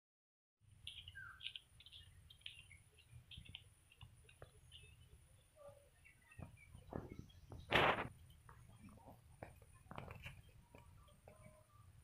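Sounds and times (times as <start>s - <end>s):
faint birdsong: 0.7s - 12.0s.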